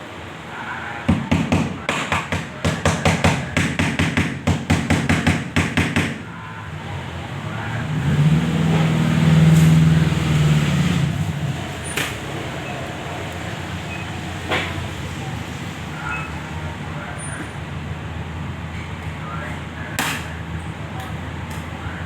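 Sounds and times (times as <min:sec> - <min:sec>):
rapid sharp knocks: 0:01.1 - 0:06.2.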